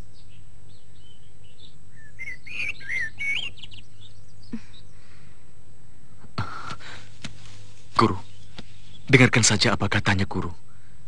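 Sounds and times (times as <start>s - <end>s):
birds chirping: 0.0s - 11.0s
low background hum: 0.0s - 11.0s.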